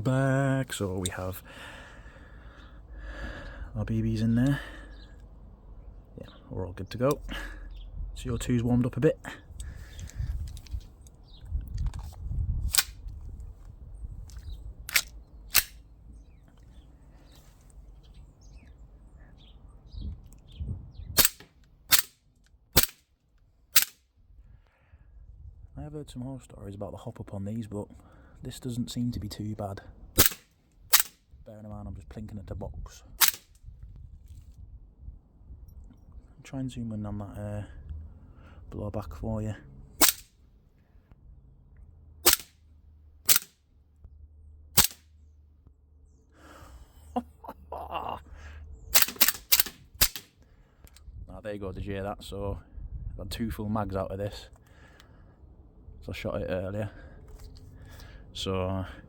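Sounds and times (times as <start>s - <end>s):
pistol slide cycling: 11.8s - 13.0s, 14.3s - 15.8s, 21.2s - 22.2s, 22.8s - 23.0s, 23.8s - 24.0s, 30.2s - 31.2s, 33.2s - 33.6s, 40.0s - 40.3s, 42.2s - 42.6s, 43.3s - 43.6s, 44.8s - 45.0s, 48.9s - 50.3s
air pistol shots: 14.9s - 15.8s, 21.2s - 22.2s, 22.8s - 23.0s, 23.8s - 24.0s, 30.2s - 31.2s, 33.2s - 33.5s, 40.0s - 40.3s, 42.2s - 42.6s, 43.3s - 43.6s, 44.8s - 45.0s, 49.0s - 50.3s.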